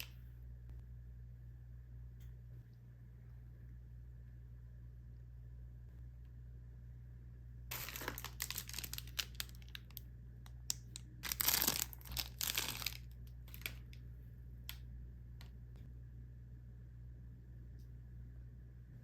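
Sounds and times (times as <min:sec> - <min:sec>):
plastic packaging crinkling: 0:07.7 - 0:10.0, 0:10.7 - 0:14.0.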